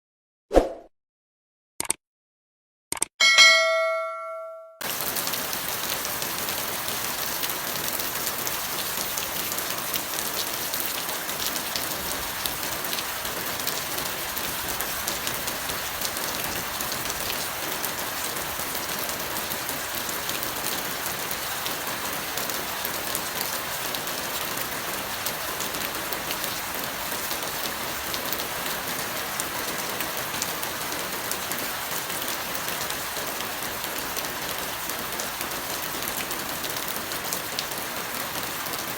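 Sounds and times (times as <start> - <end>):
bell-like chime ringing: 3.2 - 4.8
heavy rain: 4.8 - 38.9.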